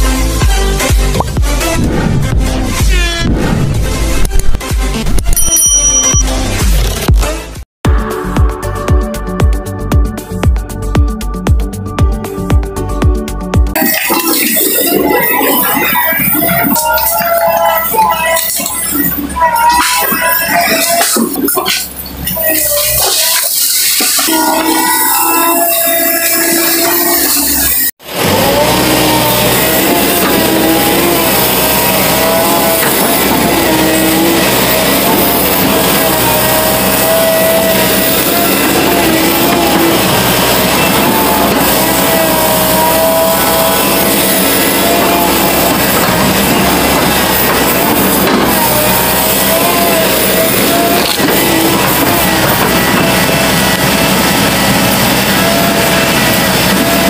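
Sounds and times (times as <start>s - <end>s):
excavator diesel engine: 0.0s - 57.0s
background music with held notes: 6.2s - 19.1s.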